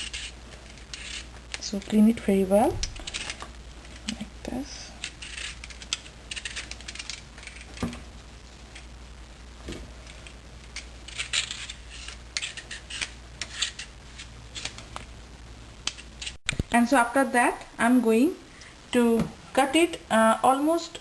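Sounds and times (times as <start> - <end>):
knife scraping papaya: 0.0 - 1.3, 5.0 - 7.7, 11.0 - 14.7.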